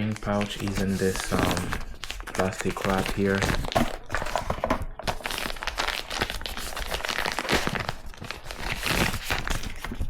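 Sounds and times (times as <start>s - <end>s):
plastic wrap crinkling and tearing: 0.0s - 10.0s.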